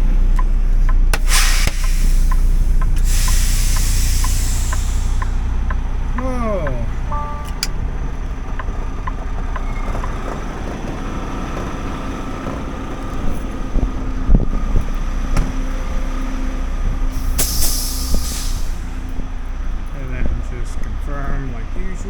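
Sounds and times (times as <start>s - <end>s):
diesel truck engine running: 0.0s - 22.0s
air brakes hissing: 1.2s - 6.2s, 17.1s - 19.2s.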